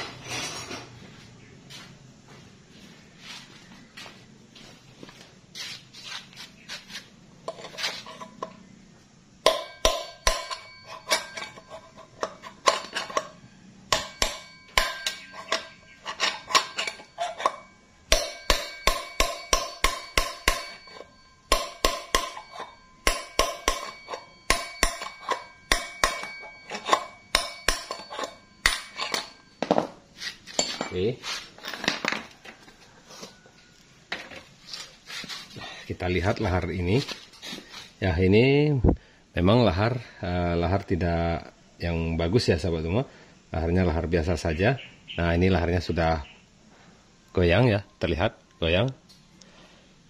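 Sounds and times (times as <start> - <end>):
hammer striking metal: 9.4 - 13.3, 13.9 - 31.1.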